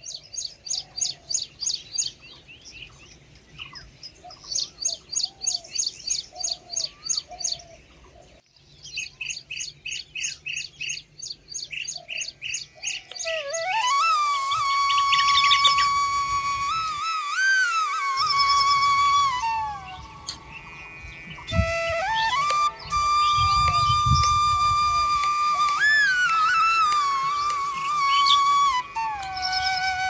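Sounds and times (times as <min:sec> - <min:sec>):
lower whistled bird notes: 0:08.6 - 0:30.0
rapid high bird chirps: 0:25.7 - 0:30.0.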